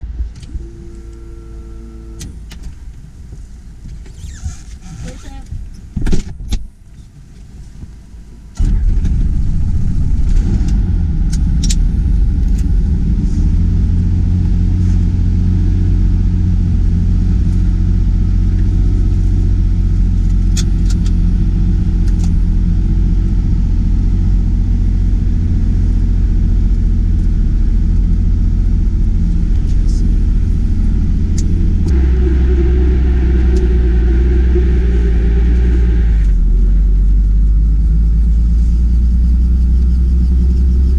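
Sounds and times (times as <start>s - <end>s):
helicopter drone inside cabin: 0.1s - 2.6s, 8.6s - 40.9s
rough rushing noise: 8.6s - 15.5s, 30.0s - 37.1s.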